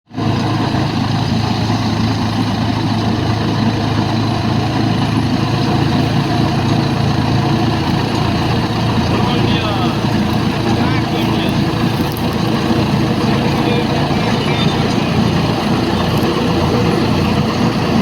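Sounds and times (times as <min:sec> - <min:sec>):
tractor diesel engine running: 0:00.1 - 0:18.0.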